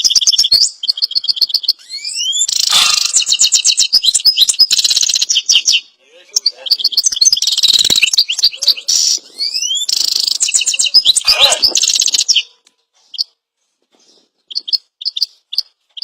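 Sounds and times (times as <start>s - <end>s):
bird chirping and warbling: 0.0s - 13.3s
low bird squawk: 1.8s - 3.9s, 8.6s - 12.6s.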